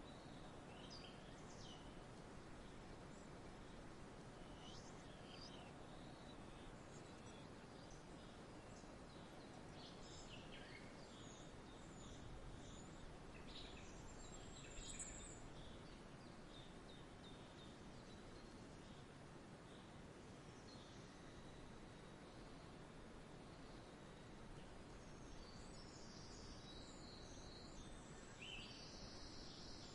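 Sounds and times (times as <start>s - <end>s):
small birds chirping: 0.0s - 22.7s, 23.4s - 29.9s
soft background hiss: 0.0s - 29.9s.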